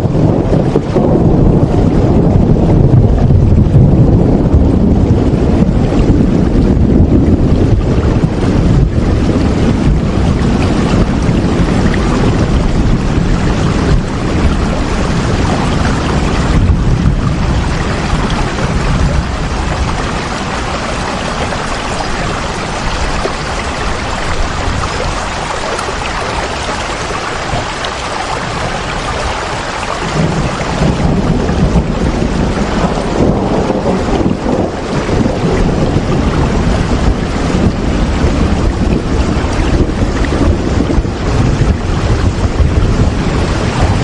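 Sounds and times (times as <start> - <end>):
deep rumble: 0.0 - 44.0
steady rain hiss: 6.6 - 41.2.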